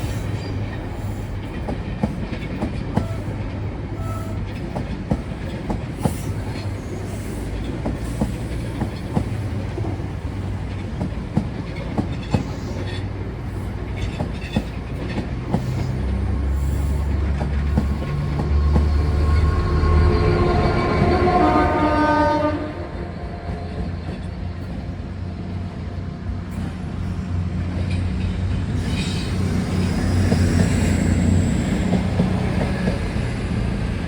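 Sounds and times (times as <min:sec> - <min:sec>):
train wheels clicking over rail joints: 0:00.0 - 0:19.5, 0:26.4 - 0:34.0
train rumble: 0:00.0 - 0:34.0.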